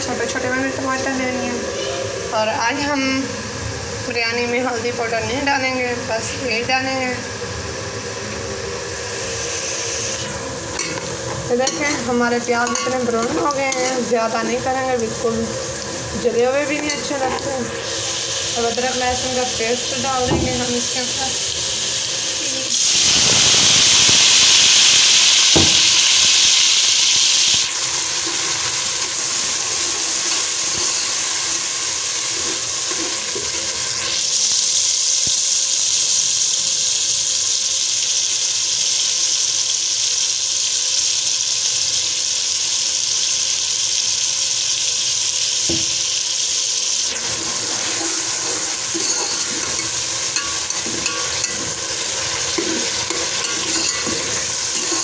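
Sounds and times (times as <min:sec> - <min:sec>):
food sizzling in hot oil: 0:00.0 - 0:55.0
spoon knocking: 0:10.8 - 0:14.6, 0:16.7 - 0:17.5, 0:48.1 - 0:55.0.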